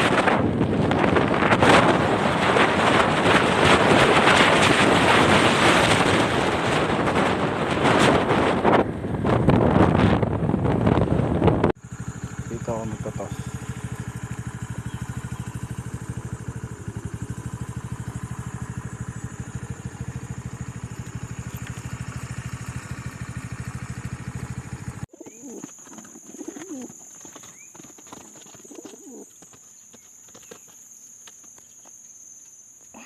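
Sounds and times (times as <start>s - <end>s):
motorcycle engine idling: 10.3s - 25.1s
high insect whine: 11.8s - 33.0s
pigeons cooing: 25.1s - 29.5s.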